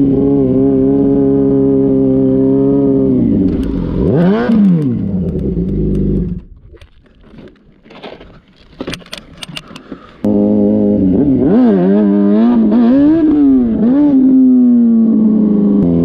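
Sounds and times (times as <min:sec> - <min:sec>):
motorcycle engine revving: 0:00.0 - 0:06.6, 0:10.2 - 0:16.0
faint ticks and scrapes: 0:04.5 - 0:10.2.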